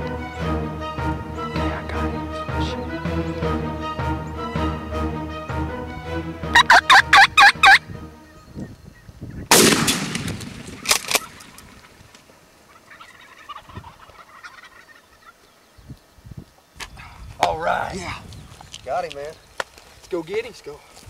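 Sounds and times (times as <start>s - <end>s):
wild turkey gobbling: 6.6s - 7.8s, 11.1s - 15.5s
loud gunshot: 9.5s - 11.6s
sharp crack: 9.5s - 12.3s.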